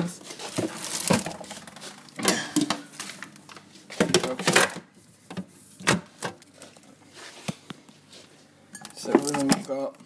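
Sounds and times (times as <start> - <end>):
packets rustling: 0.2 - 2.1
food containers knocking and clattering: 0.2 - 6.8, 8.8 - 10.0.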